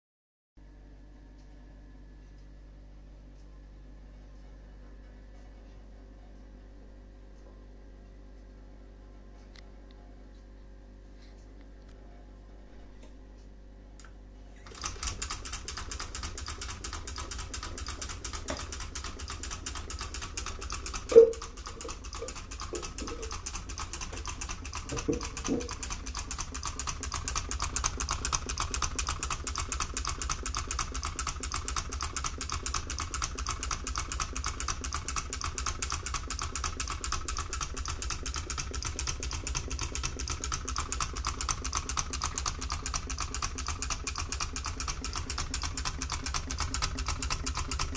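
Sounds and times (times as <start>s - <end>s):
engine fast steady clicking: 14.7s - 47.9s.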